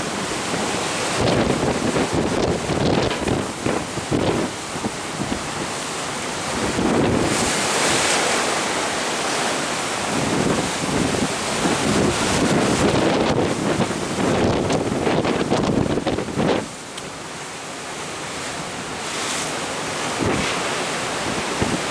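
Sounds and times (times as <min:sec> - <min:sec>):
wind buffeting microphone: 0:00.0 - 0:05.8, 0:06.4 - 0:08.6, 0:10.0 - 0:16.8, 0:20.0 - 0:21.9
sea water rushing: 0:00.0 - 0:21.9.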